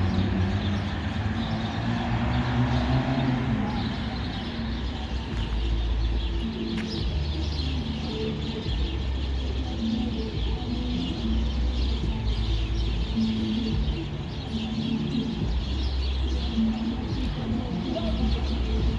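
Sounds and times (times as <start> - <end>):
small birds chirping and twittering: 0.0 - 18.9.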